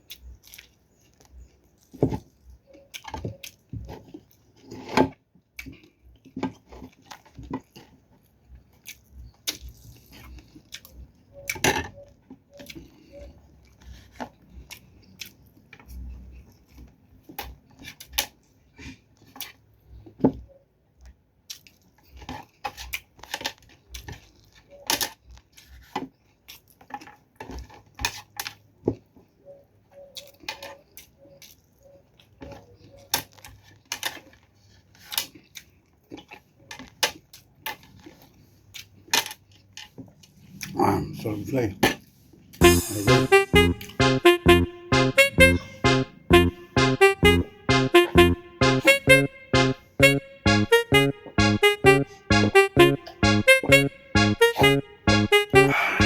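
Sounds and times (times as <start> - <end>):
chewing fried fish: 0.0 - 40.8.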